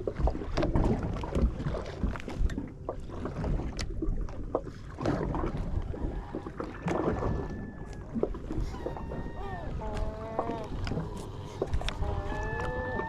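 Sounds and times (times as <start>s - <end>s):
knocks and clicks on boat: 0.0s - 13.0s
water washing: 0.0s - 13.0s
wind noise: 5.1s - 13.0s.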